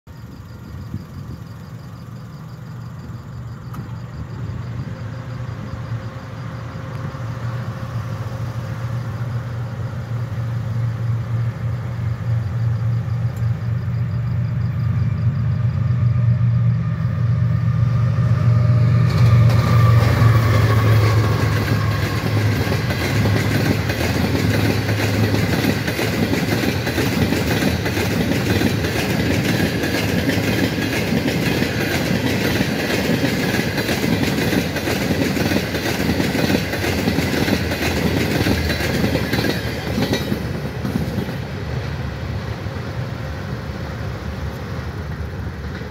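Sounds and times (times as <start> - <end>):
diesel locomotive engine hum: 0.1 - 45.9
wheels clattering over rail joints: 19.0 - 42.0.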